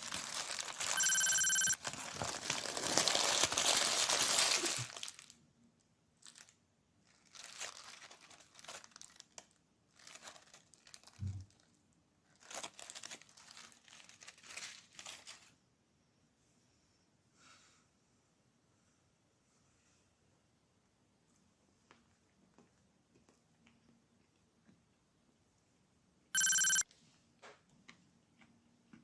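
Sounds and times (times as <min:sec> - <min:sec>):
packaging crinkling: 0:00.0 - 0:05.4, 0:07.1 - 0:11.6, 0:12.3 - 0:15.5.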